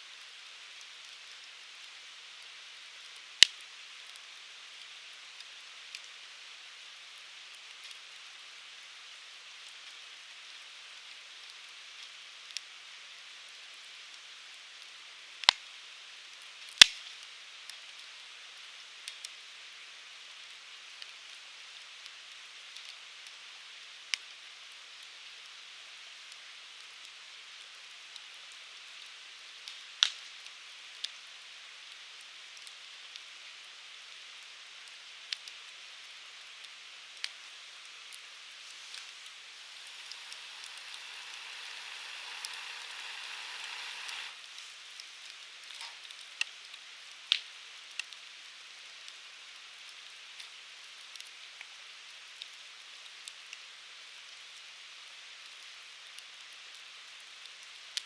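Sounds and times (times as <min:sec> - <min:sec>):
firewood burning with crackles: 0:00.0 - 0:58.0
steady hiss of flame: 0:00.0 - 0:58.0
sharp pops from fire: 0:16.7 - 0:17.2, 0:29.6 - 0:31.0, 0:36.6 - 0:48.2.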